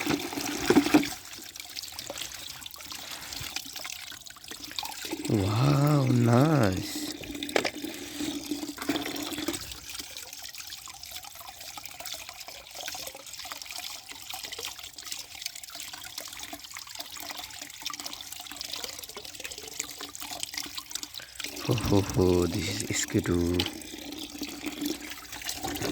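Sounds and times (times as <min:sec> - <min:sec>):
running water splashing: 0:00.0 - 0:10.2, 0:21.0 - 0:25.9.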